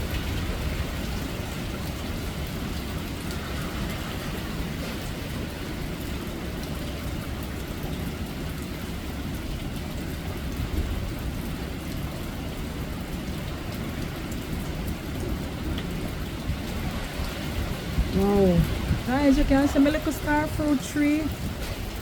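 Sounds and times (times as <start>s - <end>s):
rain ticks: 0.0s - 22.0s
wind buffeting microphone: 13.8s - 22.0s.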